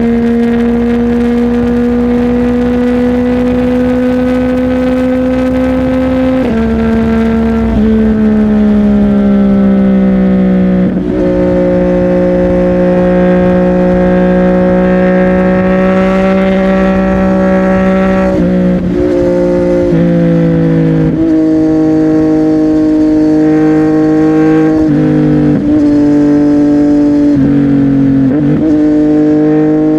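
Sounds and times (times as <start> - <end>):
gear change: 0.0 - 21.2
motorcycle engine running: 0.0 - 29.9.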